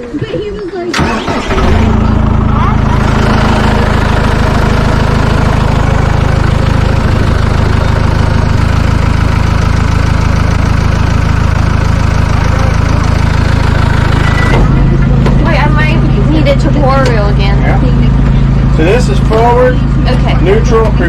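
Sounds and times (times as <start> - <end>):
tractor engine idling: 0.0 - 21.0.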